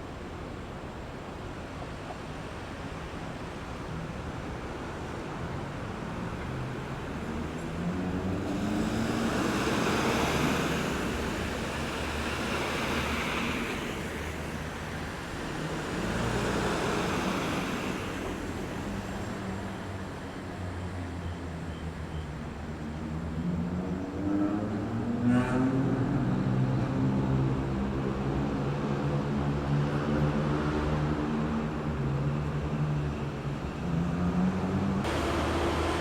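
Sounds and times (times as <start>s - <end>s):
cars passing: 6.0s - 21.1s, 22.8s - 36.0s
vehicle accelerating away: 7.8s - 13.8s, 33.8s - 36.0s.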